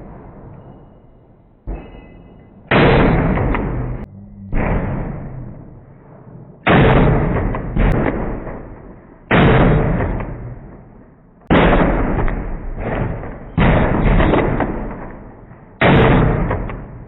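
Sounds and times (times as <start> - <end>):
slowed-down gunshots: 2.7 - 17.0
bullet strike cracks: 6.6 - 17.0.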